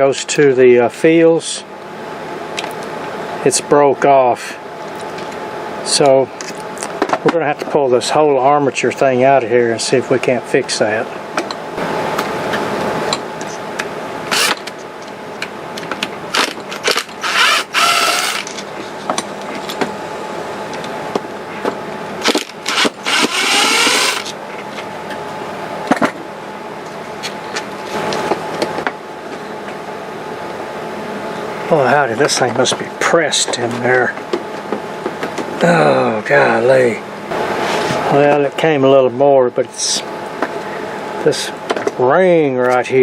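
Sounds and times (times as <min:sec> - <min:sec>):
steady background hum: 0:00.0 - 0:43.0
wavering mechanical whir: 0:16.4 - 0:18.7, 0:22.2 - 0:24.4.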